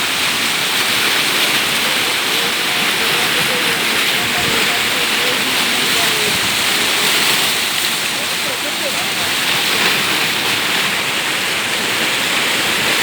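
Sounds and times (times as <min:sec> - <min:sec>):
floodwater rushing: 0:00.0 - 0:13.0
faint distant voices: 0:00.9 - 0:10.2.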